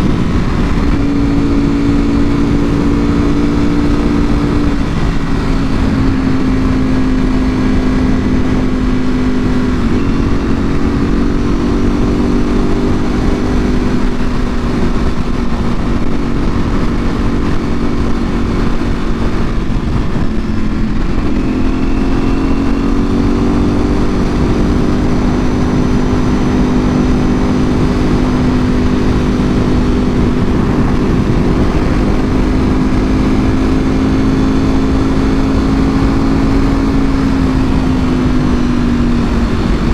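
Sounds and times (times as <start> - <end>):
motorcycle engine cruising: 0.0 - 39.9
wind noise on microphone: 0.0 - 39.9.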